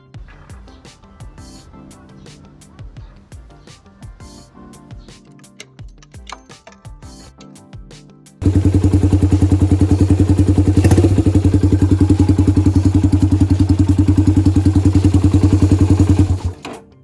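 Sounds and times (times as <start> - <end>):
motorcycle engine idling: 8.4 - 16.8.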